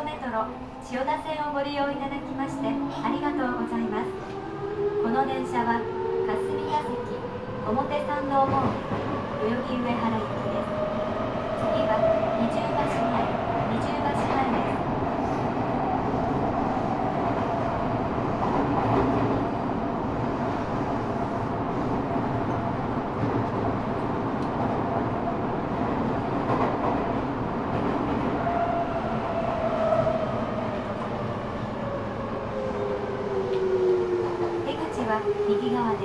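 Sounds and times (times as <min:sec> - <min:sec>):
train wheels on rail: 0:01.9 - 0:36.0.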